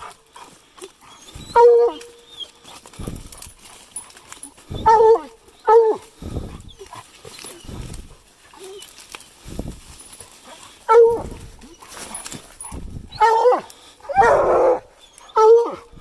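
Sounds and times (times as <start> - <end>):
hounds barking: 1.3 - 2.8, 3.4 - 6.1, 10.5 - 12.3, 13.1 - 15.9.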